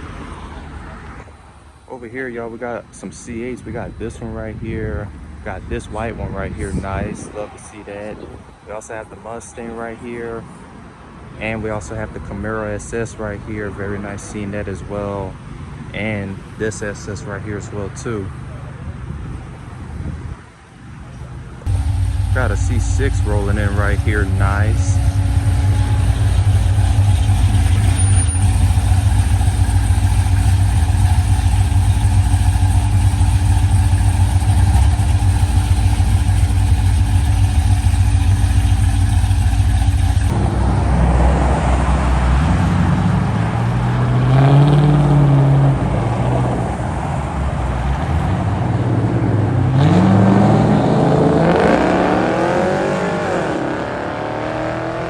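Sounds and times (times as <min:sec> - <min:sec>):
car engine idling: 0:21.6 - 0:41.0
car engines revving: 0:21.6 - 0:55.0.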